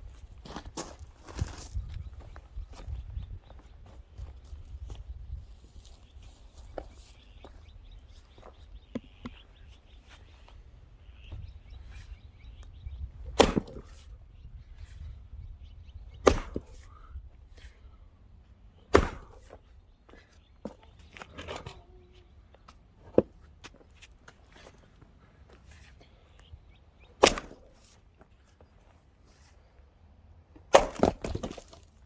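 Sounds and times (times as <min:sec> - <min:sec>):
faint wooden knocks and taps: 0:08.9 - 0:09.5
axe splitting log: 0:13.2 - 0:14.0, 0:16.2 - 0:16.9, 0:18.9 - 0:19.6, 0:27.2 - 0:27.9, 0:30.7 - 0:32.0.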